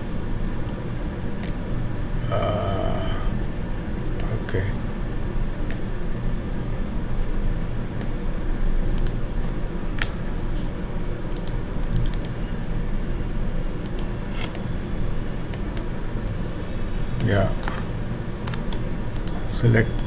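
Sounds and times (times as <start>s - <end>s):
keyboard and mouse clicks: 1.4s - 1.8s, 9.0s - 9.2s, 11.3s - 12.5s, 13.8s - 14.7s, 17.6s - 19.4s.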